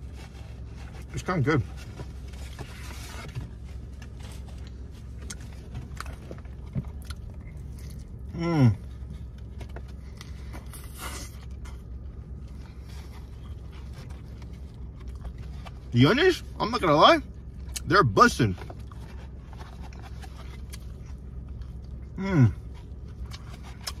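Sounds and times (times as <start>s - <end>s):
car cabin hum: 0.0s - 24.0s.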